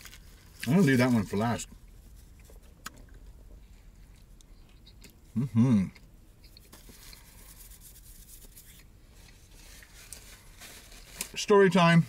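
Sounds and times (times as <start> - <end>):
person chewing food: 1.8 - 7.4
person humming approval: 5.4 - 6.0.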